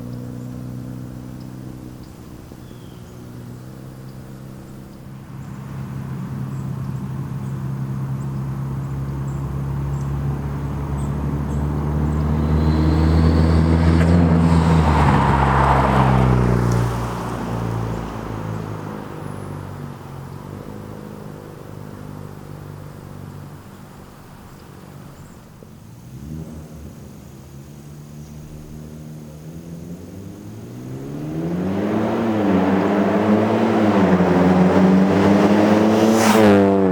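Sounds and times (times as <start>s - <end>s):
turbocharged car engine: 26.0s - 36.9s.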